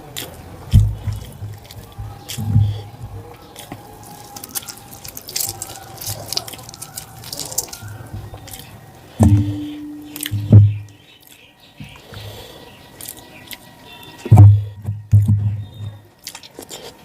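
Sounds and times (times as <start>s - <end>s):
wet eating sounds: 0.0s - 14.8s, 16.2s - 17.0s
low thuds: 0.7s - 3.4s, 9.2s - 11.0s, 14.3s - 16.0s.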